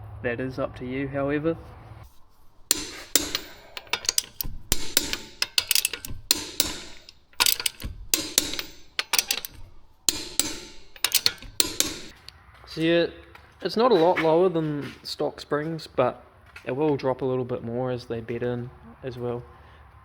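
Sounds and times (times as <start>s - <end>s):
sharp knocks and clinks: 2.1s - 12.2s.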